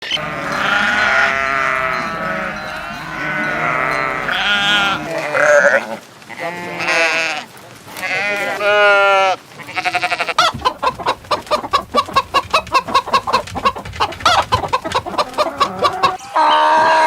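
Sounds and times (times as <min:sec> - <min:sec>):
sheep bleating: 0:00.0 - 0:10.5.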